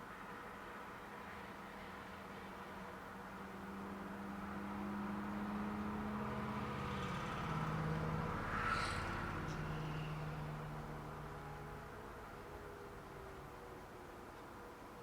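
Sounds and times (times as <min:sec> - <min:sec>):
motorcycle passing: 0:03.5 - 0:12.4.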